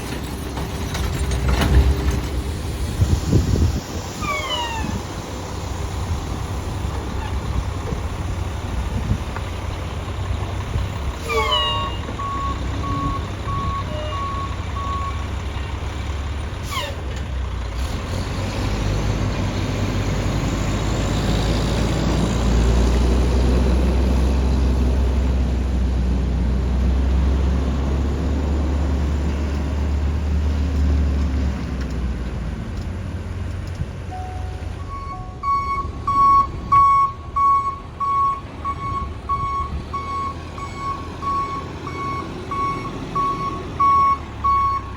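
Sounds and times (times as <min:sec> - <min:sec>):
diesel engine running: 0:00.0 - 0:44.9
reversing beeper: 0:11.3 - 0:15.2, 0:34.1 - 0:44.9.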